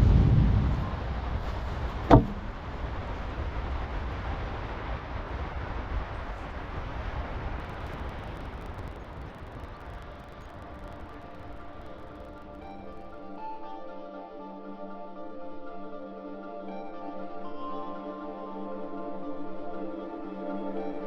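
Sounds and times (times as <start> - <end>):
low rumbling noise: 0.0 - 13.3
sharp knock: 2.1 - 2.6.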